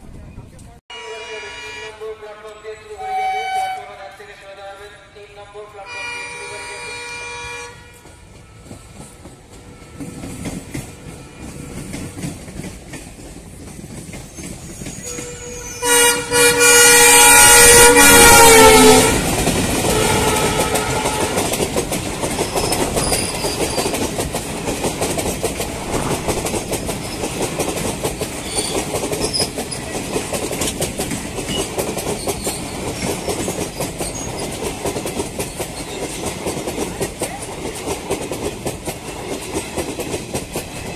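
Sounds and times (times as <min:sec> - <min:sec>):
train horn: 0:00.9 - 0:04.2, 0:05.8 - 0:08.8, 0:09.6 - 0:12.1, 0:15.0 - 0:19.3, 0:19.9 - 0:21.7
train wheels clattering over rail joints: 0:08.0 - 0:15.8, 0:19.2 - 0:40.9.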